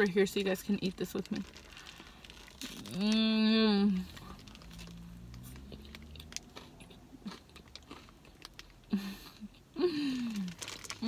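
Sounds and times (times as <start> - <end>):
person chewing crunchy food: 4.0 - 9.0.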